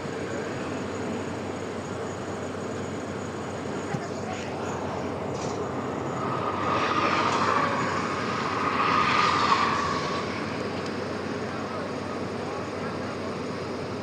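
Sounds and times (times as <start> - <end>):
excavator engine and hydraulics: 0.0 - 14.0
high whine: 0.0 - 14.0.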